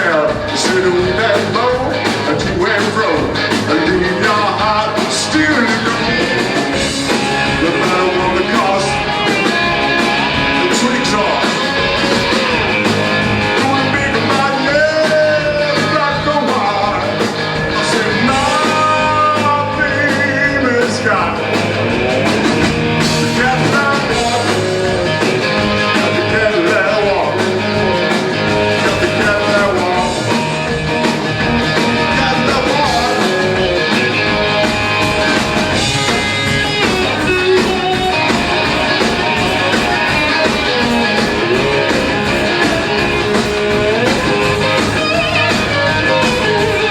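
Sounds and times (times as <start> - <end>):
pitch-bending lead line: 0.0 - 46.9
rock and roll band playing: 0.0 - 46.9
steady drum beat: 0.0 - 46.9.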